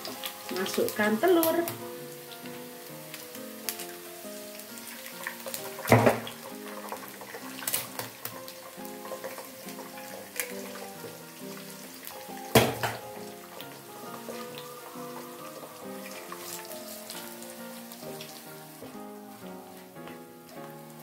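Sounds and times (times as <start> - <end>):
light sizzling crackle: 0.0 - 21.0
eggs cracked into hot oil: 5.0 - 11.1, 12.0 - 17.3.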